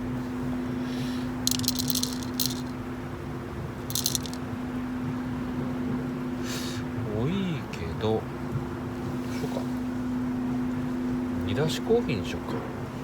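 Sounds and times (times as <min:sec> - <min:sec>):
steady low hum: 0:00.0 - 0:07.0
coffee beans rattling in container: 0:01.5 - 0:02.8, 0:03.9 - 0:04.4.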